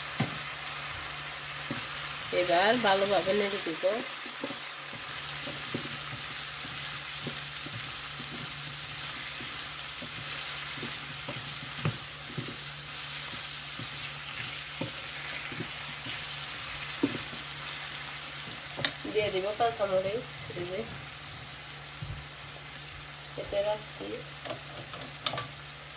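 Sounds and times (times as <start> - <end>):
vegetables sizzling in oil: 0.0 - 25.9
wooden spatula knocking on pan: 16.9 - 17.5.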